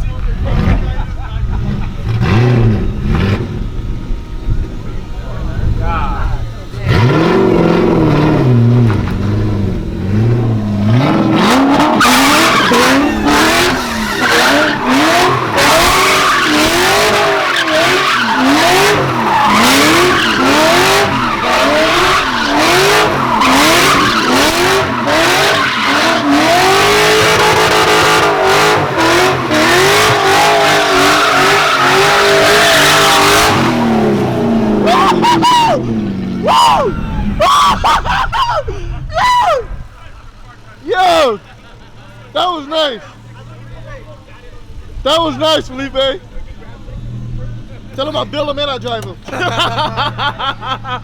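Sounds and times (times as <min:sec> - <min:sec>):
car engine revving hard: 0:00.0 - 0:38.1
tyres squealing and skidding: 0:00.0 - 0:51.0.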